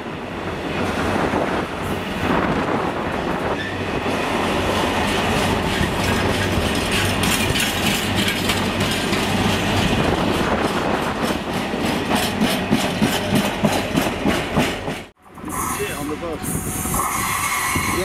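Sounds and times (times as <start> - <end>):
wheels clattering over rail joints: 2.9 - 15.1.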